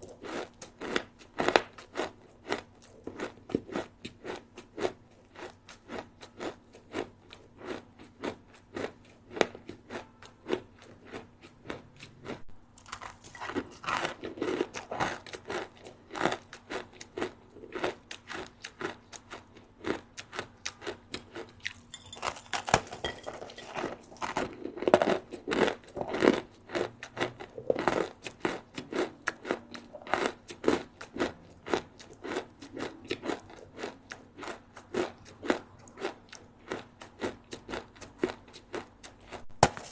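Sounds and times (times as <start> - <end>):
person chewing crispy snacks: 0.0 - 39.9.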